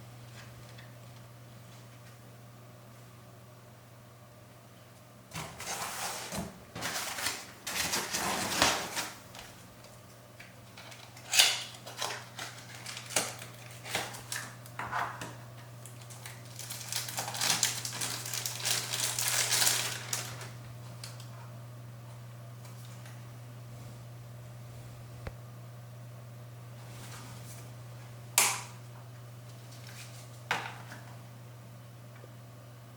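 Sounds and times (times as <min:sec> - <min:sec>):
steady low hum: 0:00.0 - 0:32.9
packaging rustling and crinkling: 0:05.4 - 0:09.9, 0:10.7 - 0:14.7, 0:15.8 - 0:21.3, 0:29.5 - 0:31.0.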